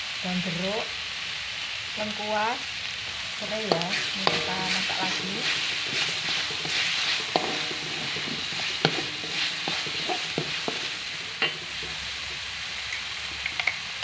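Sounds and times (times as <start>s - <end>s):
spice paste sizzling in a wok: 0.0s - 14.0s
metal spatula scraping a pan: 3.4s - 12.5s.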